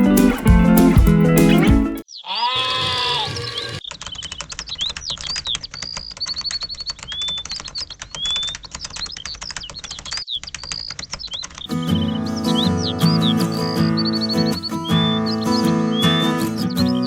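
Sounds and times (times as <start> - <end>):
music: 0.0 - 2.0, 11.7 - 17.0
chirping whistles: 2.1 - 10.1, 10.7 - 17.0
animal bleat: 2.2 - 3.8
fast dense clicking: 3.4 - 11.8.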